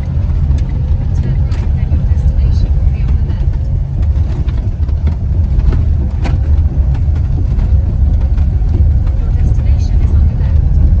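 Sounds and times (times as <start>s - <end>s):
light knocks and rattles: 0.0s - 11.0s
vehicle engine and road rumble: 0.0s - 11.0s.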